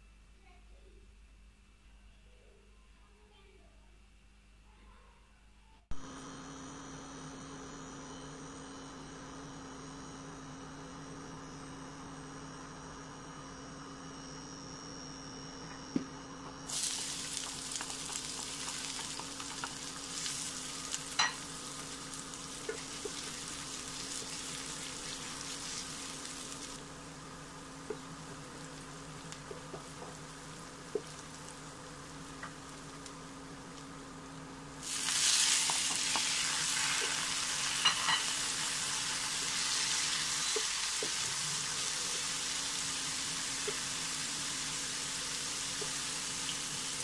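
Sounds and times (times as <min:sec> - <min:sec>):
electrical hum: 0:00.0 - 0:47.0
food sizzling in hot oil: 0:16.6 - 0:47.0.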